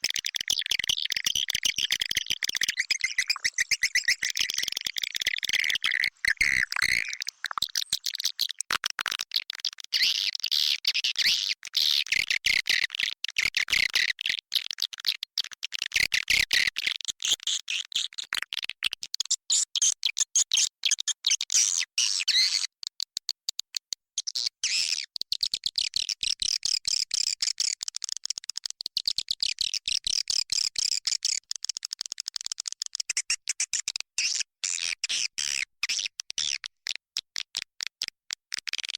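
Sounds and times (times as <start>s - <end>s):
swiftlets twittering: 2.6s - 8.0s.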